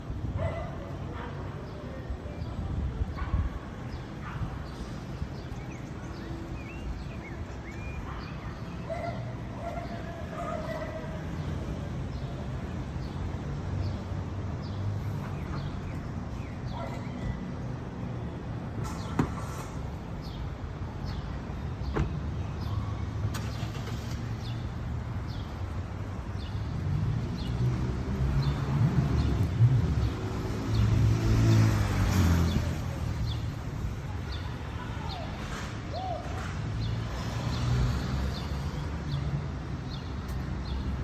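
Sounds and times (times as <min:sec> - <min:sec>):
vehicle engine rumble: 0:18.6 - 0:38.6.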